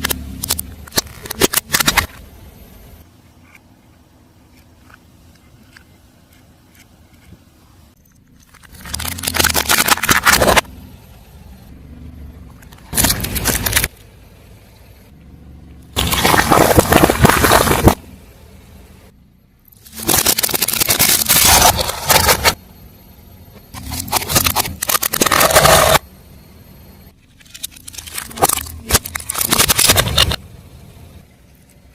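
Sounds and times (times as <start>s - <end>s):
tyre crushing crunchy objects: 8.6s - 10.7s, 12.8s - 13.9s, 16.0s - 18.0s, 19.8s - 22.6s, 23.8s - 26.0s, 27.8s - 30.4s.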